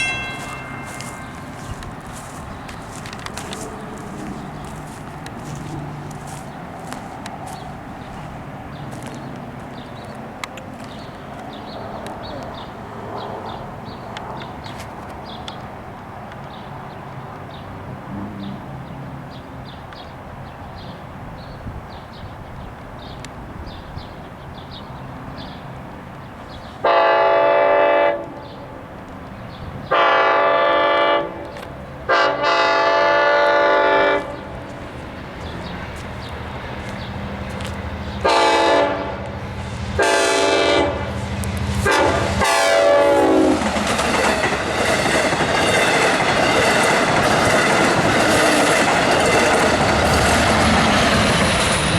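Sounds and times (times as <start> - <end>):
train horn blasts: 0.0 - 1.7, 26.8 - 28.4, 29.9 - 31.5, 32.1 - 34.5, 38.2 - 39.3, 40.0 - 41.2, 41.8 - 43.7
crossing warning bell ringing: 0.0 - 4.7, 40.0 - 51.9
train wheels clattering on rails: 0.0 - 12.7, 39.2 - 51.9.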